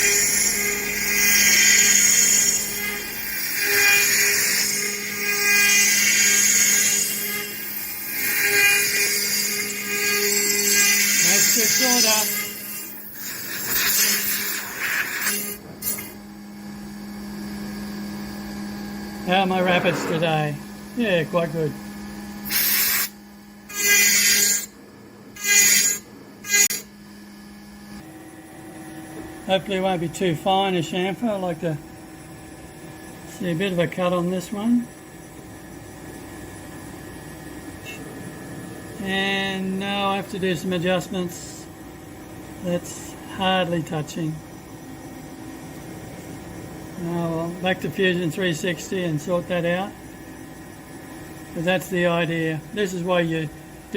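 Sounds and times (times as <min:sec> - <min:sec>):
high-pitched cutting whine: 0:00.0 - 0:53.9
router spindle hum: 0:00.0 - 0:53.9.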